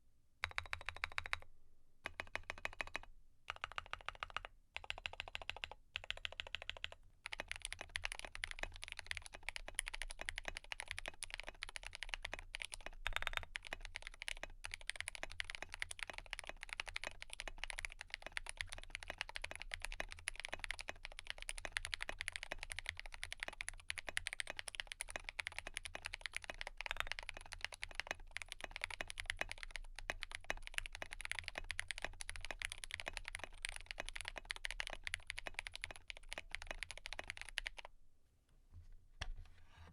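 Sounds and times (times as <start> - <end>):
fast mechanical keyboard typing: 0.4 - 1.5, 2.1 - 37.9.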